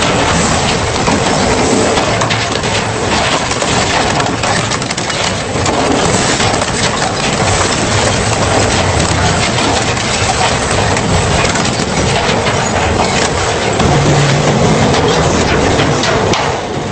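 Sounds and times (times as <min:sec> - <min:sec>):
industrial shredder grinding scrap: 0:00.0 - 0:16.9.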